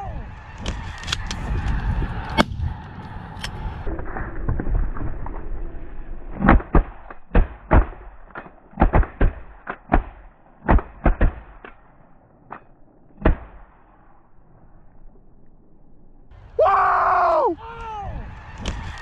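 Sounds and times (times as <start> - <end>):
shotgun shots: 6.4 - 11.8, 13.2 - 13.8.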